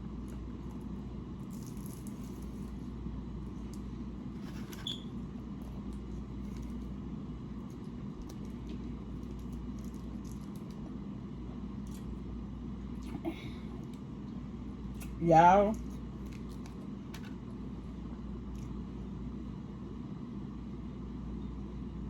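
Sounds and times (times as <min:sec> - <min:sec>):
low background hum: 0:00.0 - 0:22.0
soft chewing: 0:11.8 - 0:12.2, 0:18.4 - 0:18.8.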